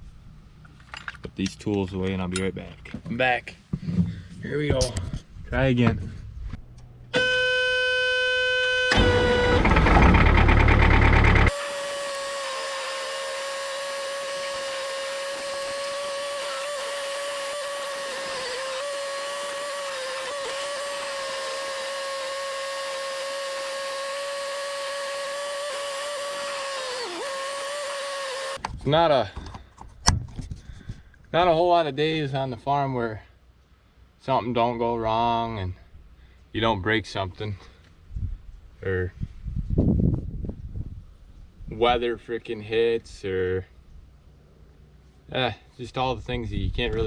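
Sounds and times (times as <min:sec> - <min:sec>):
diesel engine cranking: 0:06.6 - 0:28.6
warning buzzer: 0:07.2 - 0:09.8.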